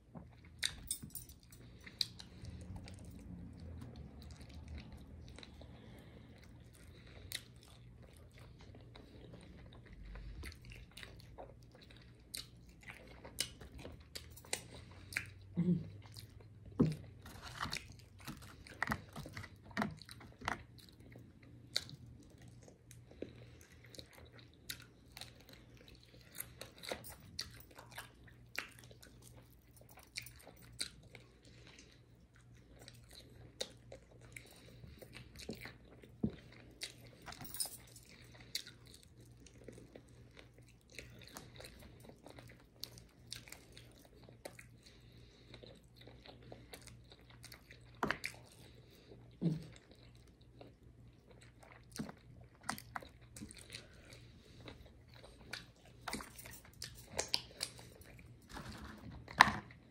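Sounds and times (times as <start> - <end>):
crunchy chewing: 16.0 - 59.9.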